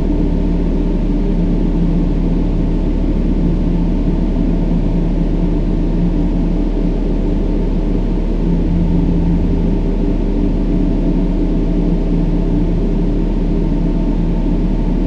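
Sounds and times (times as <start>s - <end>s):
faint held low tones: 8.2s - 12.0s
brown noise rush: 8.3s - 11.8s.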